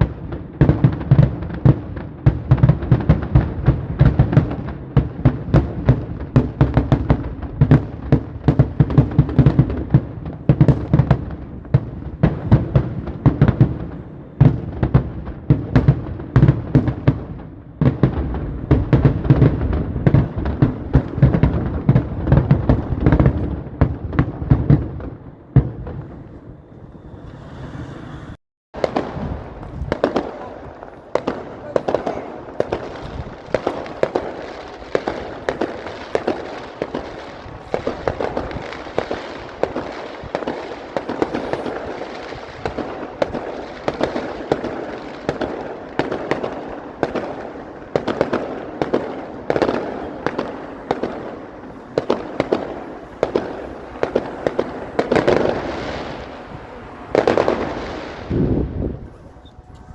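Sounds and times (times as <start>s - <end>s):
fireworks bangs and cracks: 0.0s - 27.9s, 28.8s - 59.1s
low rumble: 25.9s - 30.0s.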